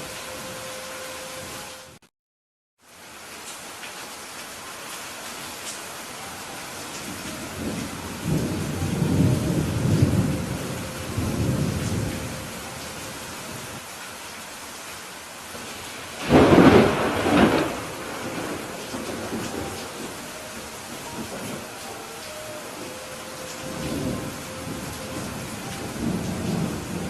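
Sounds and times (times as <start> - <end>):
steady rain: 0.0 - 2.0, 2.8 - 27.0
rolling thunder rumble: 7.0 - 13.8, 16.2 - 27.0
sharp thunderclap: 16.2 - 20.1.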